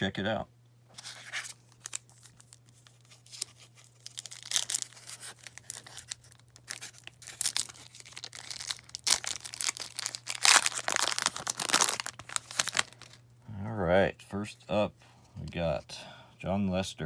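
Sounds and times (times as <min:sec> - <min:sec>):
wrapper tearing and crinkling: 0:01.0 - 0:13.2.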